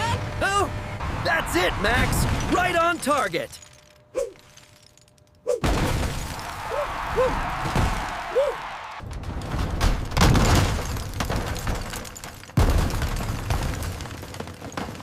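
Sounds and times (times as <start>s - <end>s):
rumble of crashing debris: 2.0s - 8.3s, 9.0s - 15.0s
wrecking ball crashing into building: 5.6s - 8.3s, 9.0s - 15.0s.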